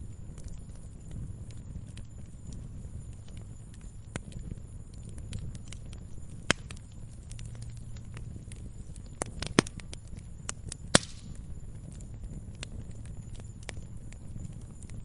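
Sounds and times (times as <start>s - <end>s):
campfire crackling: 0.0s - 15.0s
fire popping: 0.0s - 15.0s
low steady rumble: 0.0s - 15.0s.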